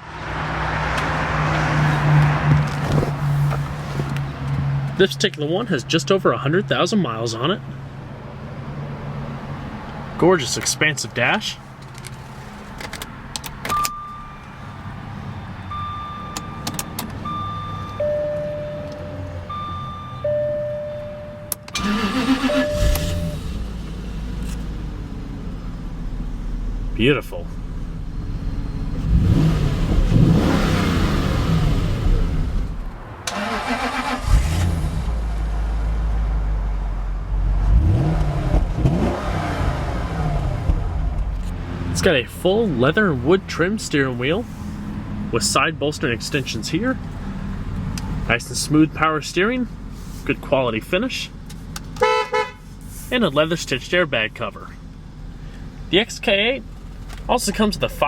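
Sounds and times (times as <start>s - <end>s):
low car rumble: 0.0s - 58.0s
car warning chime beeping: 13.7s - 23.6s
car engine revving: 21.8s - 27.0s, 27.6s - 36.3s, 37.3s - 43.6s.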